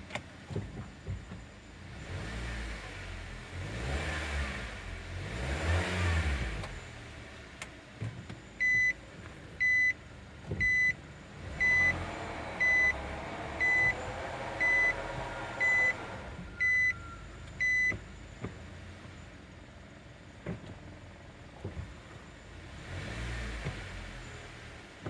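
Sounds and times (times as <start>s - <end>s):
car engine running: 0.0s - 25.0s
reverse warning buzzer beeping: 11.6s - 12.0s, 12.6s - 18.0s
whining drivetrain drone: 11.9s - 17.2s.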